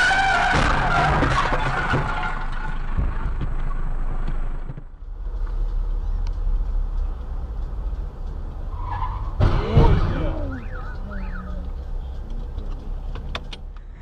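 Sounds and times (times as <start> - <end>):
car tyres squealing: 0.0 - 4.1, 8.5 - 11.9
car driving rumble: 0.0 - 14.0.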